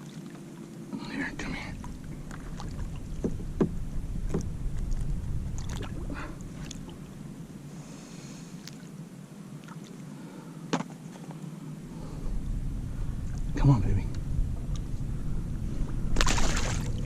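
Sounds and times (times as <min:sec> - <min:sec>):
water sloshing against kayak: 0:00.0 - 0:09.0, 0:14.1 - 0:17.0
low rumble: 0:00.9 - 0:08.6, 0:11.8 - 0:17.0
light knocks on hull: 0:02.3 - 0:04.5.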